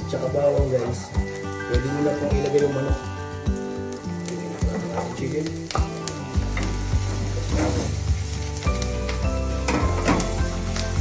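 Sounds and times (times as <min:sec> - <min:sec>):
background music: 0:00.0 - 0:11.0
chicken sizzling in a pan: 0:00.0 - 0:11.0.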